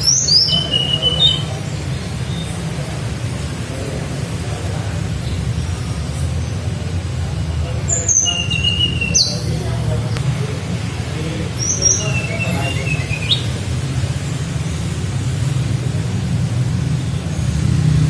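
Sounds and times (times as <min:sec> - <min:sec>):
bird flute-like whistles: 0:08.1 - 0:09.3, 0:11.6 - 0:13.5.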